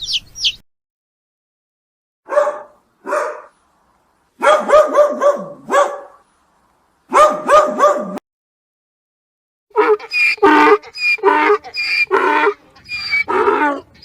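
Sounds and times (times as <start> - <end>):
small dog yapping: 2.3 - 3.5, 4.4 - 6.2, 7.1 - 8.2.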